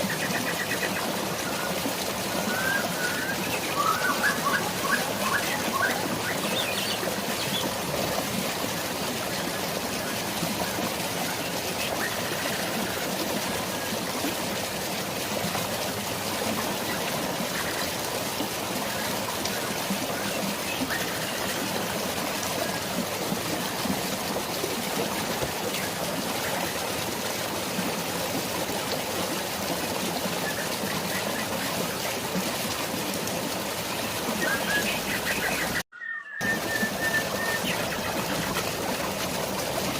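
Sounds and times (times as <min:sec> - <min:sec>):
drizzling rain: 0:00.0 - 0:39.9
flowing water: 0:00.0 - 0:39.9
faint bird chirps: 0:34.4 - 0:38.4.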